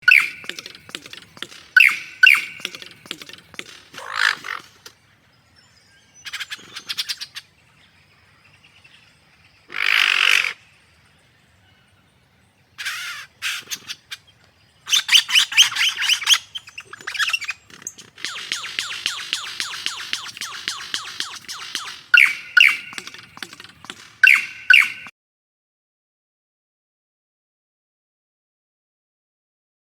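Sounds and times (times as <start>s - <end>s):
harsh bird call: 0.0s - 4.8s, 12.8s - 14.1s, 14.9s - 25.1s
birds chirping and trilling: 0.0s - 25.1s.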